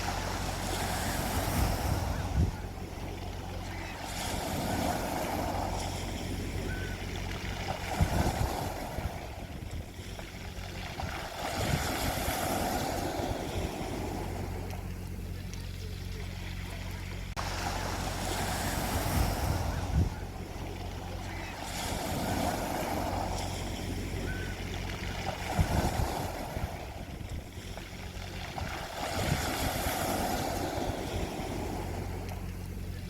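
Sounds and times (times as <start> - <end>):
sea waves washing onto beach: 0.0 - 33.0
steady low hum: 0.0 - 33.0.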